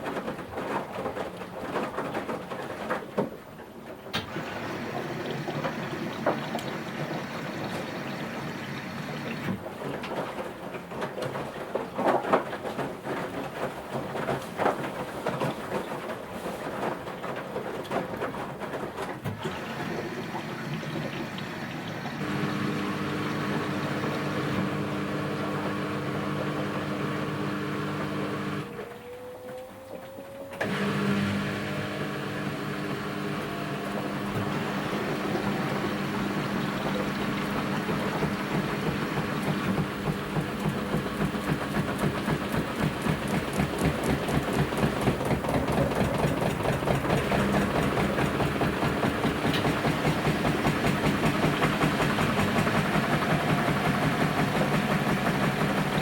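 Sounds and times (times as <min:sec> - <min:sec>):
washing machine motor humming: 0:04.1 - 0:10.0, 0:17.9 - 0:56.0.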